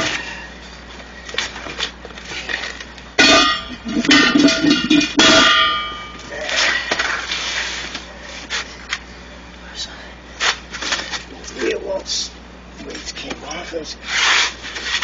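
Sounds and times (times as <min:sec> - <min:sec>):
metal clanging strikes: 0:03.2 - 0:06.2.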